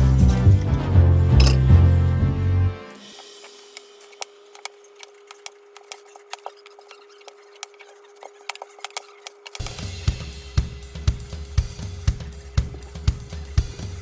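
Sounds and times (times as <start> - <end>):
background music: 0.0 - 3.2
small clicks and ticks: 2.9 - 10.0.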